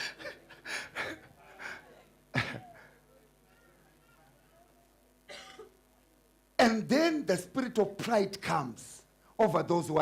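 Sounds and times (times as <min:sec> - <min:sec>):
person coughing: 0:02.4 - 0:02.9.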